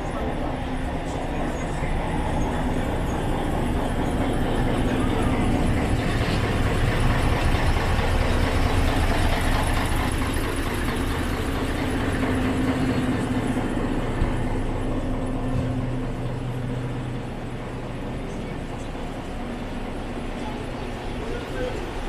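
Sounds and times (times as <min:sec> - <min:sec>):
train running on rails: 0:00.0 - 0:22.0.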